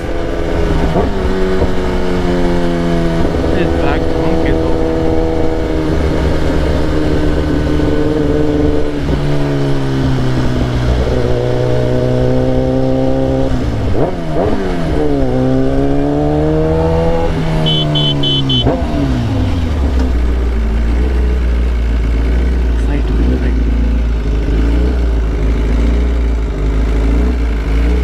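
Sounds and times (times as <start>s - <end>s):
motorcycle engine revving: 0.0s - 28.0s
short high beeps: 17.6s - 18.7s.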